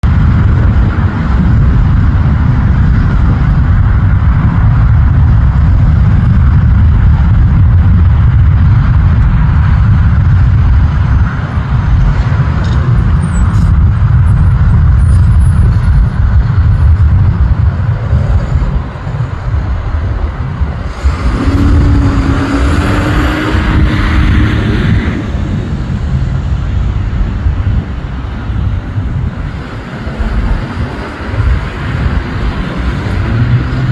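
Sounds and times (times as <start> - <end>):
jet engines rumbling: 0.0 - 33.9
steady hum: 17.5 - 29.3
rising high whine: 17.6 - 28.4.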